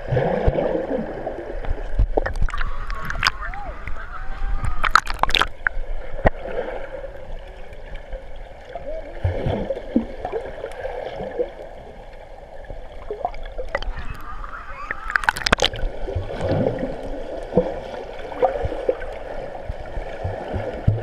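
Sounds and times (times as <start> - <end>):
running gurgling water: 0.0 - 21.0
faint voices: 2.6 - 4.9, 13.7 - 15.3
sharp splashes: 4.7 - 5.7, 13.1 - 19.0.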